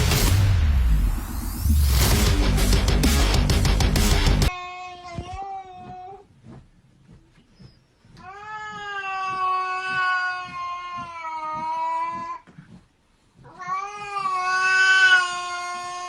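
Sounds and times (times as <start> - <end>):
cat yowling: 8.2 - 12.4, 13.4 - 16.0.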